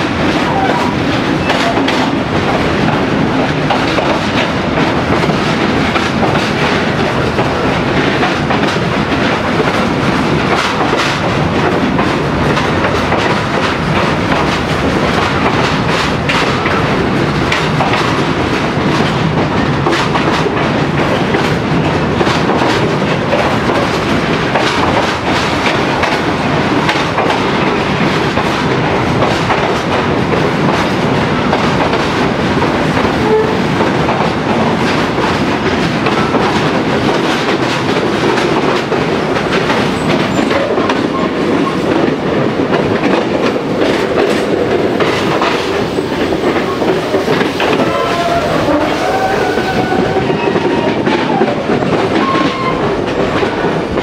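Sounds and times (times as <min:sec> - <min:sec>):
train rumbling in tunnel: 0:00.0 - 0:54.0
clickety-clack wheel clicks: 0:00.1 - 0:48.3, 0:49.5 - 0:54.0.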